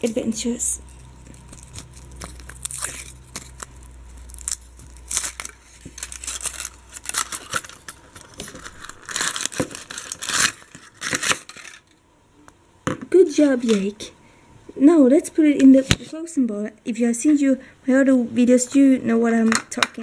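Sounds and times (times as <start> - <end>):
foil wrapper crinkling and tearing: 0.9 - 12.0.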